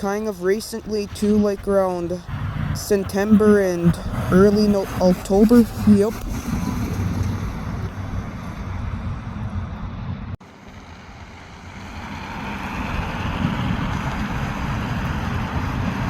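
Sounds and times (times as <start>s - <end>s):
train rumble: 0.0s - 16.0s
wind on microphone: 0.8s - 10.4s.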